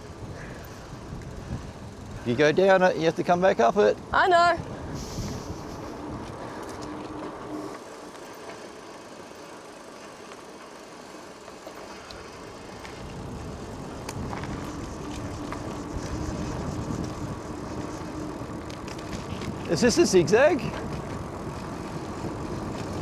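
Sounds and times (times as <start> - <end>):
wind on microphone: 0.0 - 2.3, 4.0 - 7.0, 12.8 - 23.0
bicycle tyres rolling: 0.0 - 23.0.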